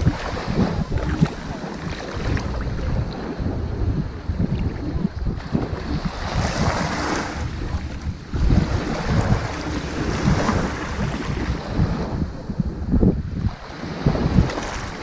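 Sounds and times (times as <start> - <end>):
ocean waves washing onto sand: 0.0 - 15.0
wind buffeting microphone: 0.0 - 15.0.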